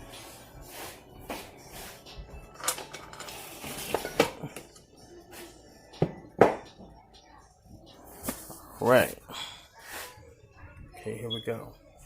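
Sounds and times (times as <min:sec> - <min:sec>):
metal parts clinking: 0:02.6 - 0:03.4.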